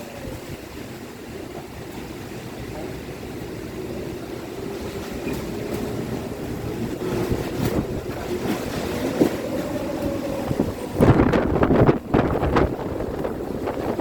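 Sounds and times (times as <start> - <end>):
strong wind gusting: 0.0 - 14.0.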